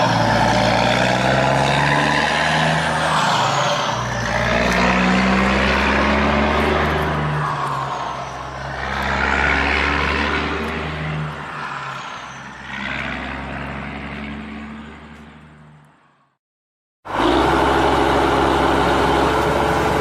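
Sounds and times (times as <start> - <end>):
cartoon vehicle engine: 17.1 - 20.0.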